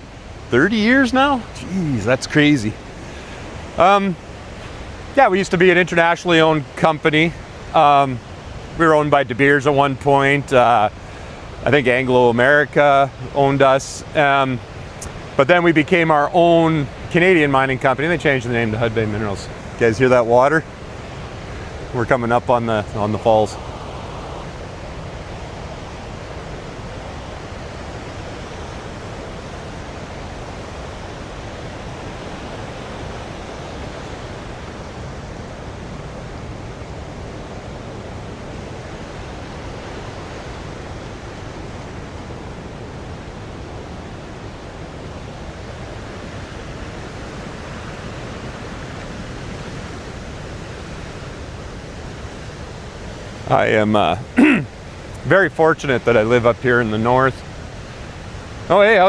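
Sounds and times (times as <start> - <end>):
waterfall and rapids rushing: 0.0 - 59.0.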